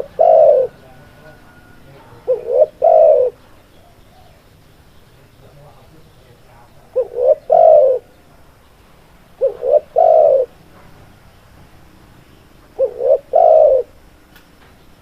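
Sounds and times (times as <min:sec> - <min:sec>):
dove cooing: 0:00.0 - 0:04.8, 0:06.6 - 0:08.4, 0:09.3 - 0:10.6, 0:12.7 - 0:14.2.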